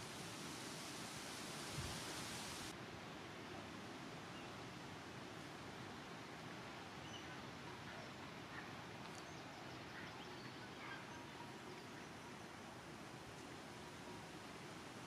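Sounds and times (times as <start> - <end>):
faint outdoor hiss: 0.0 - 15.0
faint bird chirps: 7.0 - 12.6.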